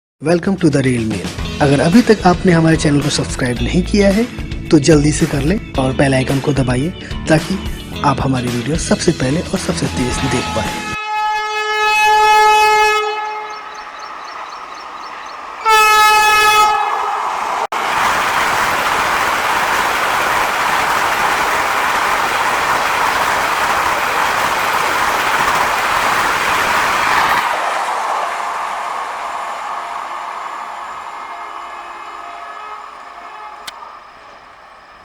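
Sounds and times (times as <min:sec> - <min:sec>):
train rushing past: 0:07.2 - 0:35.0
train horn: 0:09.7 - 0:17.7, 0:23.0 - 0:35.0.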